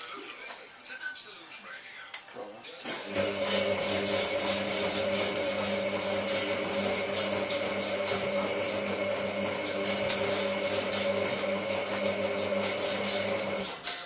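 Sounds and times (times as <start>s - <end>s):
washing machine motor humming: 2.9s - 14.0s.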